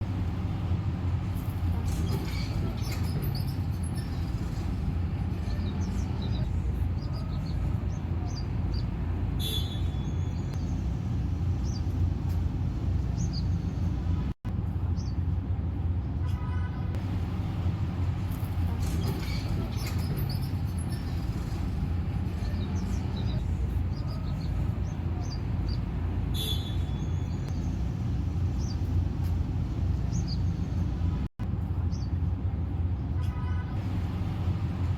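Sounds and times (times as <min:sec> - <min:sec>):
steady low rumble: 0:00.0 - 0:09.4, 0:10.2 - 0:33.2
small birds chirping: 0:05.3 - 0:14.2, 0:18.0 - 0:31.2
buzzy bird trill: 0:25.2 - 0:27.7.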